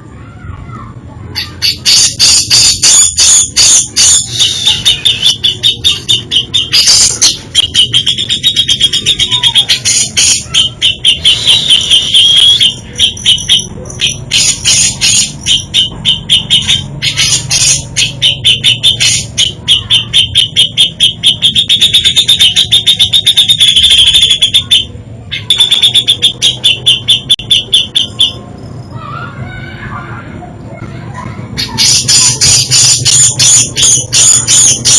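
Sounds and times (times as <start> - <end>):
bulbul chattering song: 0.7 - 29.3, 30.3 - 34.9.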